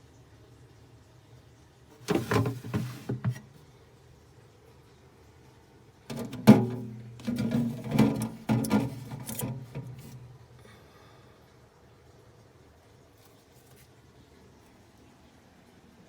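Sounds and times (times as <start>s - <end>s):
low steady hum: 0.0s - 12.9s
refrigerator contents knocking and rattling: 2.0s - 3.6s, 6.1s - 10.3s.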